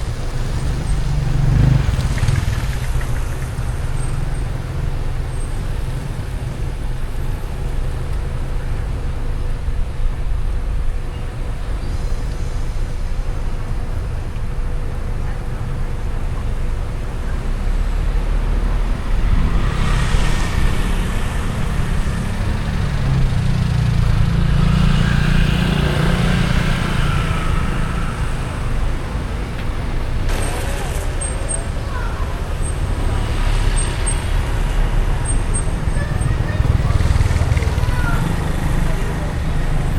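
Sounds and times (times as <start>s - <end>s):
road noise low rumble: 0.0s - 39.9s
vehicle passing close: 18.8s - 39.9s.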